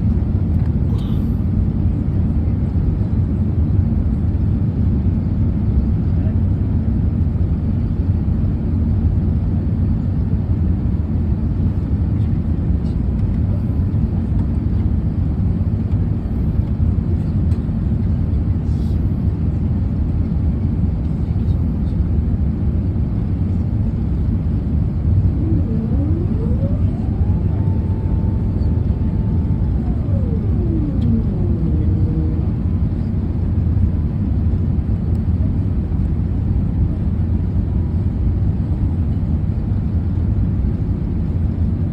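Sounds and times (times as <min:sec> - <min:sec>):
vehicle rumble: 0:23.2 - 0:36.2
faint rising tone: 0:25.2 - 0:33.2.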